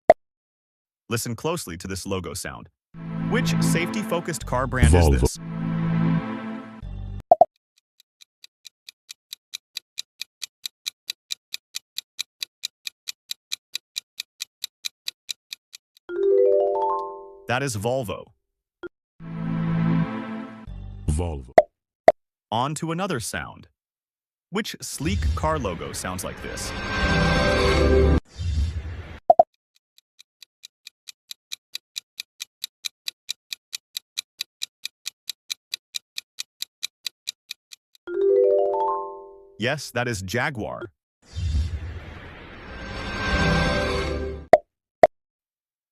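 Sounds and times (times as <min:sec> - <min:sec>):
rapid mechanical ticking: 0:29.8 - 0:38.0.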